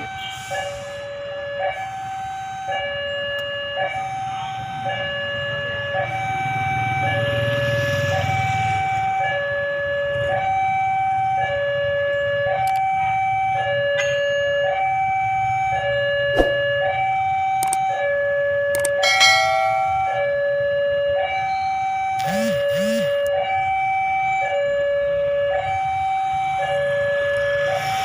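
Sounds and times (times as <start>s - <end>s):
level crossing two-tone alarm: 10.4s - 28.0s.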